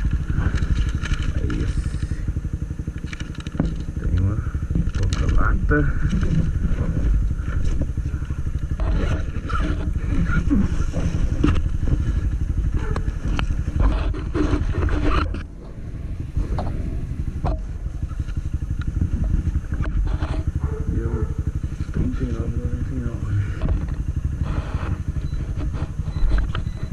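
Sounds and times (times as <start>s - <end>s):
motorcycle engine putter: 0.0s - 22.2s, 22.8s - 26.9s.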